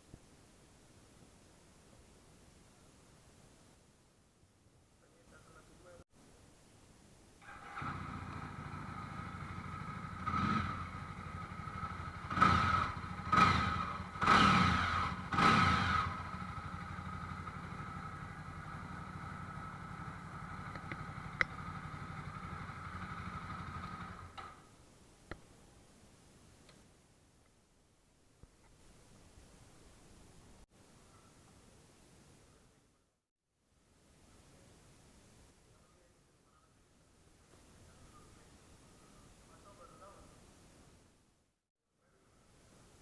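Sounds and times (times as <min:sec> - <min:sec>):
motorcycle engine idling and revving: 0:07.4 - 0:24.6.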